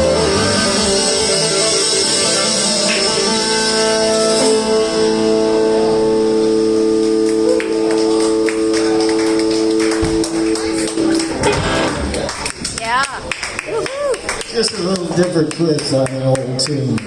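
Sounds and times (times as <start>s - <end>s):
blues band sustaining chord: 0.0s - 13.6s
drum hit: 11.3s - 12.2s.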